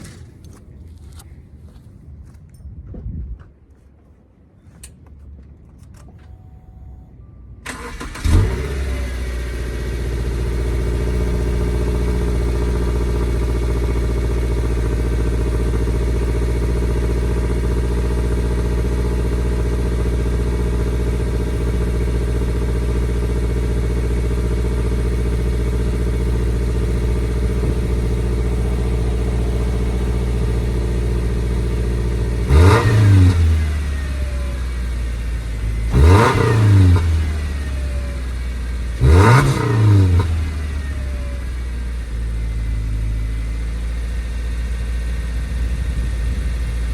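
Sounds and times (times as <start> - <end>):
car engine starting and idling: 5.6 - 46.9
engine revving: 7.7 - 41.6.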